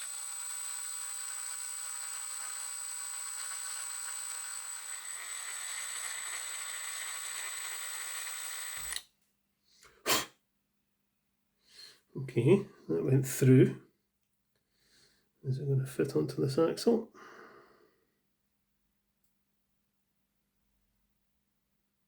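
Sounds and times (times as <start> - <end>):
electric drill whining: 0.0 - 9.0.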